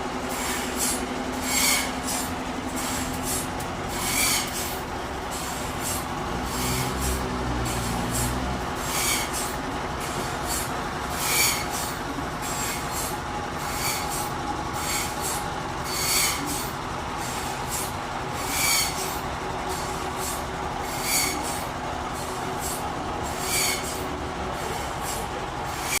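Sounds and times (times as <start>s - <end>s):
forklift engine running: 0.0s - 26.0s
short high squeal: 0.4s - 2.2s, 2.8s - 4.8s, 8.9s - 9.6s, 10.2s - 13.1s, 13.7s - 16.6s, 17.4s - 19.2s, 20.2s - 21.6s, 22.6s - 24.0s.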